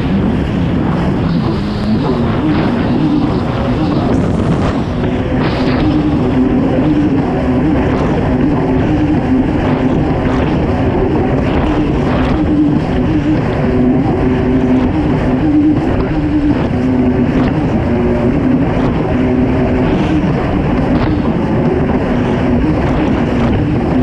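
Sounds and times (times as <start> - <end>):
jet ski engine running hard: 0.0 - 24.0
rushing water: 0.0 - 24.0.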